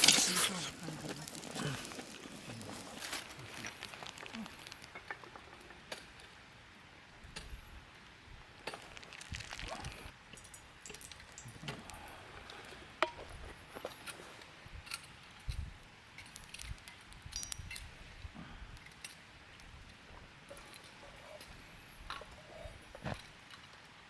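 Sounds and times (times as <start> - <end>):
small objects clinking and rustling: 0.0 - 6.4, 8.6 - 18.3.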